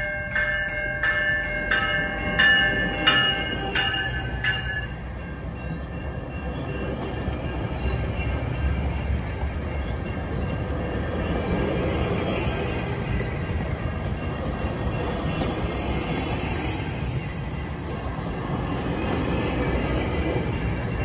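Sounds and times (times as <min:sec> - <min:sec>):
level crossing bell clanging: 0:00.0 - 0:08.8
train wheels rumbling on rails: 0:00.0 - 0:21.0
high wheel squeal: 0:07.8 - 0:21.0.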